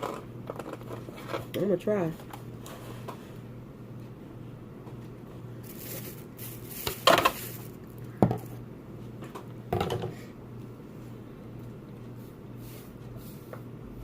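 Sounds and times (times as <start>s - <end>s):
low steady hum: 0.0s - 14.0s
shellfish rustling: 5.6s - 8.1s.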